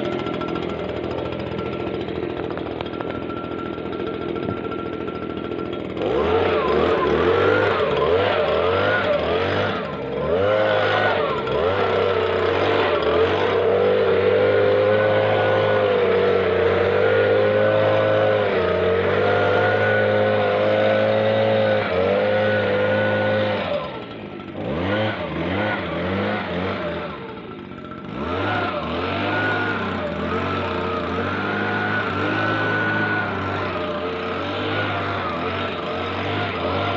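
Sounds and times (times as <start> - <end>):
leaf blower engine revving: 0.0 - 36.9.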